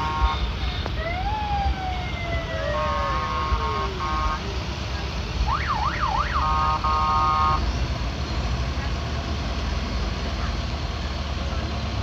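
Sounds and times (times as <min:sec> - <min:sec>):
vehicle horn blasts: 0:00.0 - 0:00.5, 0:06.4 - 0:07.6
siren whoops: 0:00.0 - 0:04.6, 0:05.4 - 0:07.6
siren wailing: 0:00.0 - 0:07.6
low engine rumble: 0:00.0 - 0:12.0.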